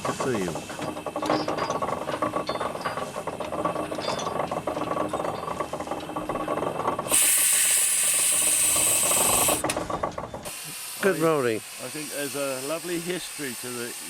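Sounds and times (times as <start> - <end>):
steam engine gearing clattering: 0.0 - 14.0
loud steam hiss: 7.1 - 9.6, 10.5 - 14.0.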